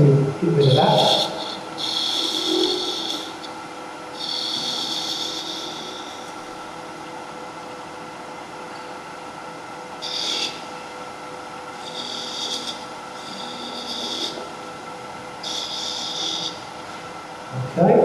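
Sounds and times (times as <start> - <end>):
turning tool hissing on wood: 0.6 - 3.6, 4.2 - 6.7, 11.8 - 14.4, 15.4 - 16.6
wood lathe humming: 0.6 - 8.2, 9.3 - 17.5.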